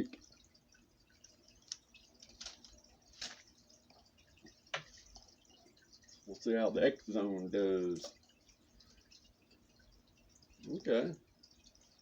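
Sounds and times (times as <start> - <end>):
water dripping: 0.0 - 12.0.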